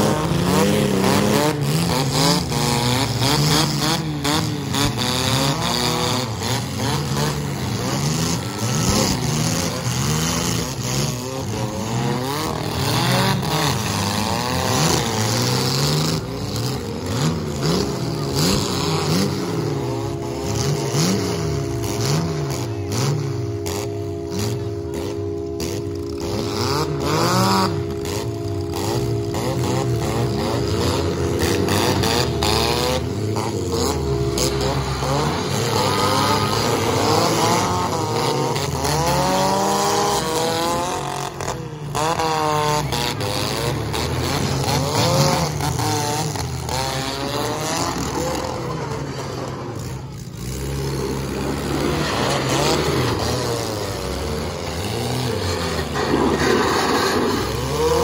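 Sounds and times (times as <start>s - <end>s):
car engines revving: 0.0s - 58.0s
steady droning tone: 0.0s - 58.0s.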